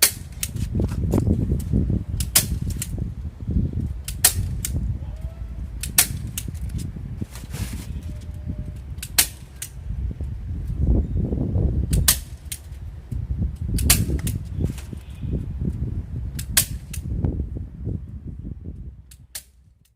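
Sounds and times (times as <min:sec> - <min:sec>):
sharp clicks: 0:00.0 - 0:03.0, 0:03.8 - 0:04.8, 0:05.8 - 0:06.9, 0:08.8 - 0:09.8, 0:11.9 - 0:14.5
steady low rumble: 0:00.0 - 0:19.9.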